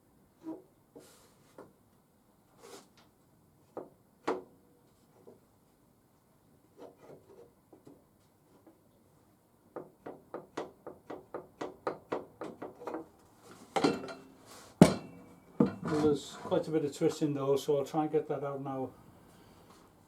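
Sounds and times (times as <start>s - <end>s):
wooden board knocking on metal: 14.8s - 16.0s.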